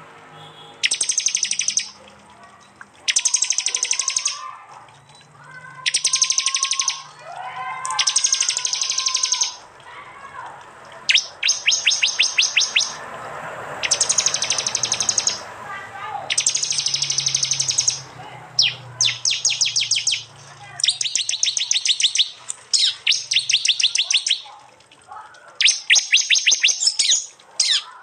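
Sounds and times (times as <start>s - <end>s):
fainter lower bird calls: 0.4s - 2.0s, 2.6s - 7.2s, 7.9s - 9.6s, 11.1s - 13.0s, 13.8s - 15.5s, 16.3s - 24.5s, 25.5s - 28.0s
bird rapid high trills: 0.8s - 2.0s, 3.1s - 4.5s, 5.8s - 7.2s, 7.8s - 9.6s, 11.1s - 13.0s, 13.8s - 15.5s, 16.3s - 24.5s, 25.6s - 28.0s
sharp high bird chips: 0.8s - 2.0s, 3.1s - 4.4s, 5.9s - 7.2s, 7.8s - 9.6s, 11.1s - 13.0s, 13.8s - 15.5s, 16.3s - 24.5s, 25.6s - 28.0s.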